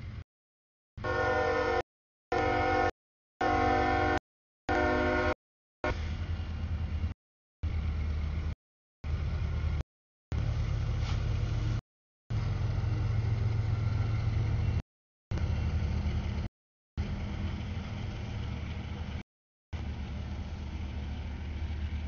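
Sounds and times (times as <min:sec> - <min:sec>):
freight train rumbling past: 0:01.0 - 0:19.2, 0:19.8 - 0:22.0.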